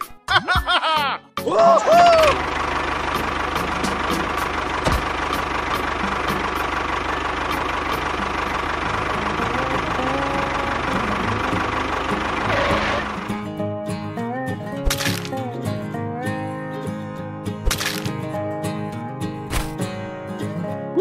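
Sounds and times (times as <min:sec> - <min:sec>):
tractor engine idling: 0:01.9 - 0:14.1.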